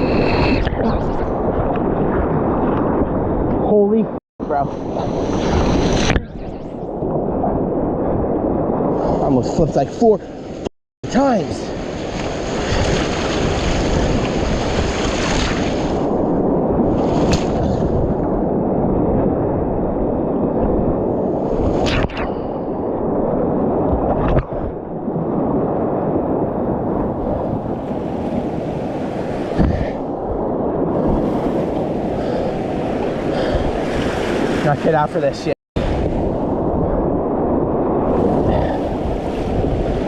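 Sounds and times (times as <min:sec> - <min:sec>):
sharp water splashes: 0:17.0 - 0:17.7.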